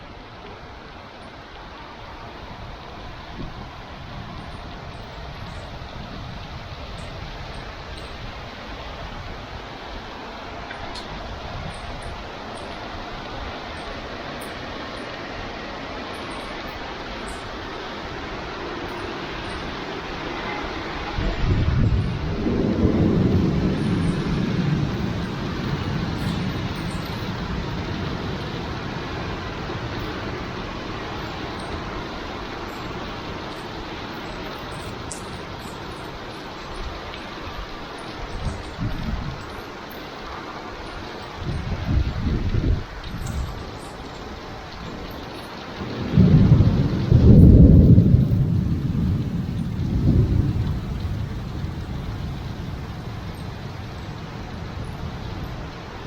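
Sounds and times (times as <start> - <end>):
heavy rain hissing: 0.0 - 56.0
thunder rolling: 20.3 - 39.6, 44.8 - 56.0.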